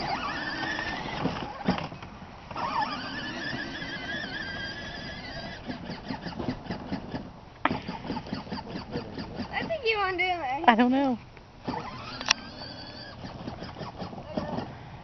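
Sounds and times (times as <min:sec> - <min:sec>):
toy truck electric motors whining: 0:00.0 - 0:09.8, 0:11.6 - 0:14.8
irregular clicks: 0:12.0 - 0:12.5.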